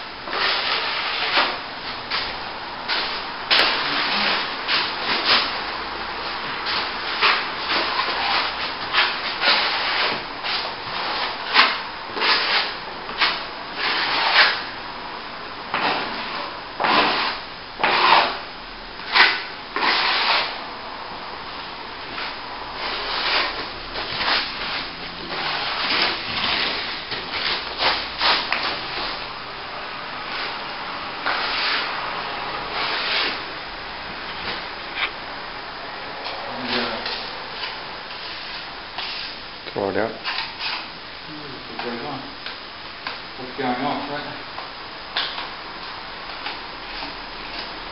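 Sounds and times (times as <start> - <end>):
trowel scraping plaster: 0.3 - 1.6, 2.9 - 5.5, 6.7 - 14.6, 15.8 - 18.4, 19.1 - 20.6, 22.8 - 29.1, 31.2 - 31.9.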